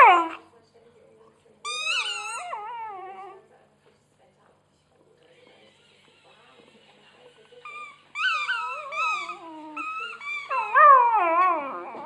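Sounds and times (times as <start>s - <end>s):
puppy whining and howling: 1.7s - 3.4s, 8.1s - 12.0s.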